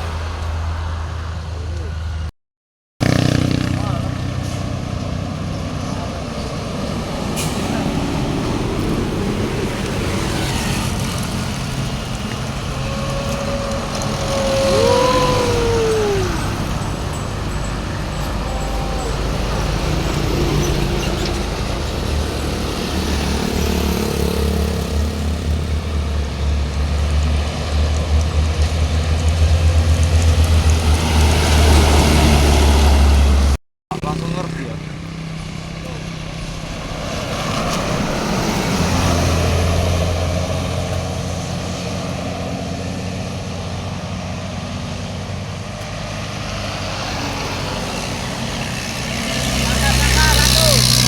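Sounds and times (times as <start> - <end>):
heavy road traffic passing: 0.0 - 2.3, 3.0 - 51.0
diesel engine rumble: 3.0 - 51.0.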